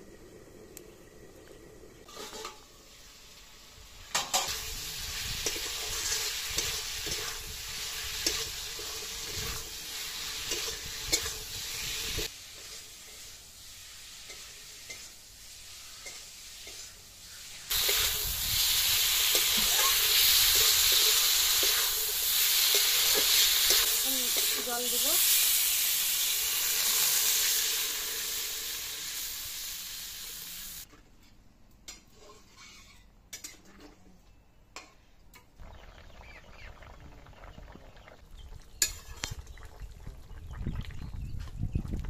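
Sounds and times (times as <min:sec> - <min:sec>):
metal spatula scraping a pan: 0:02.0 - 0:02.7, 0:31.9 - 0:33.7
food sizzling in a metal pan: 0:02.0 - 0:30.9.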